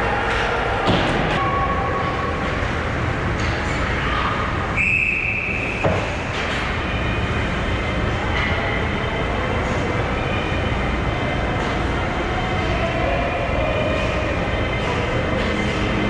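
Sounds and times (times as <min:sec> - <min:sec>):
referee's whistle blast: 0:04.8 - 0:05.9.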